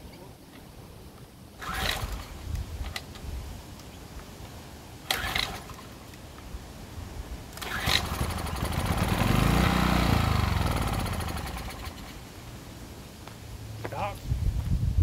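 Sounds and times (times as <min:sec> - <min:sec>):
generator pull-start rattle: 0:01.6 - 0:03.2, 0:05.1 - 0:06.0, 0:07.5 - 0:12.2
small generator engine running: 0:07.6 - 0:12.2.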